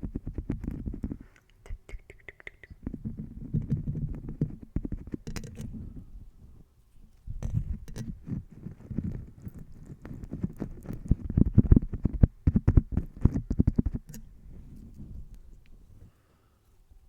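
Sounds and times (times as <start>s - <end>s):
soft pops and taps: 9.0s - 14.3s.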